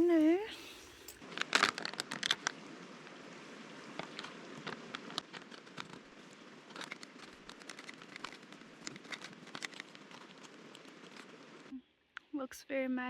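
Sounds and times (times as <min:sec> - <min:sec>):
light clicks and crackles: 0:00.0 - 0:03.2, 0:03.8 - 0:12.3
steady hiss: 0:00.0 - 0:11.8.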